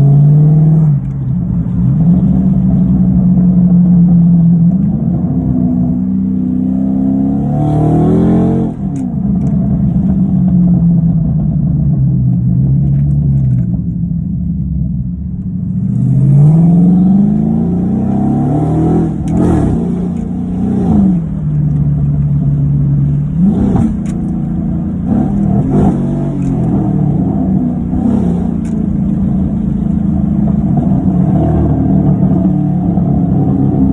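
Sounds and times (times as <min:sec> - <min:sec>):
car engine revving: 0:00.0 - 0:14.4, 0:15.4 - 0:33.9
exhaust pops: 0:15.7 - 0:33.9.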